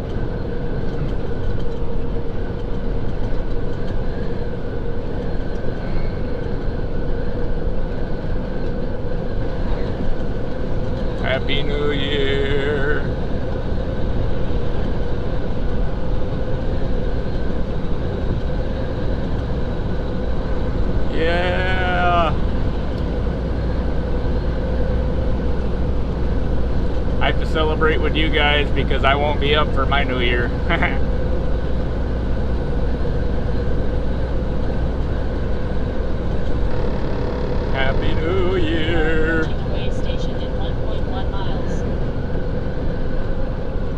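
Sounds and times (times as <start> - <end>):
steady hum: 0.0 - 43.9
truck cab rumble and road noise: 0.0 - 43.9.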